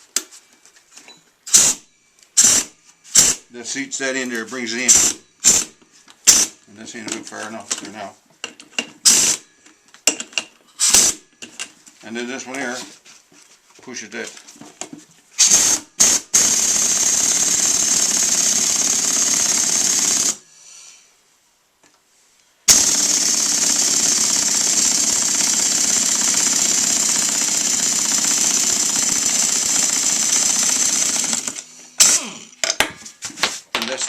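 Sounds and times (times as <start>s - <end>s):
pneumatic impact wrench: 1.5s - 3.5s, 4.8s - 6.6s, 9.0s - 9.5s, 10.8s - 11.3s, 15.4s - 20.4s, 22.7s - 32.8s.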